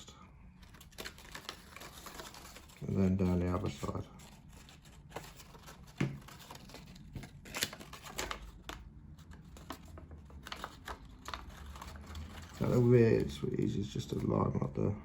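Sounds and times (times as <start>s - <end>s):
paper card taps and crinkles: 0.6s - 2.9s, 3.6s - 13.3s.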